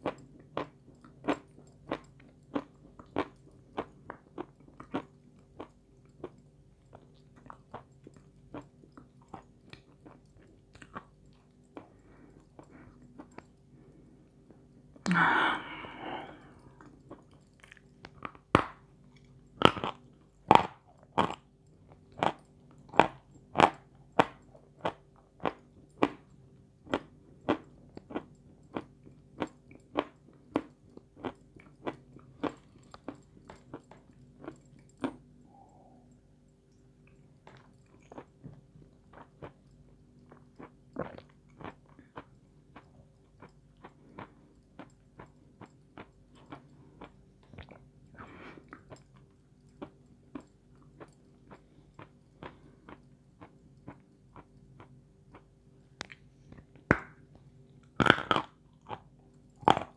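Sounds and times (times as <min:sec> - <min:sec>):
crunchy chewing and biting: 0:16.3 - 0:26.3, 0:26.9 - 0:35.3, 0:37.5 - 0:57.2, 0:57.8 - 0:59.9.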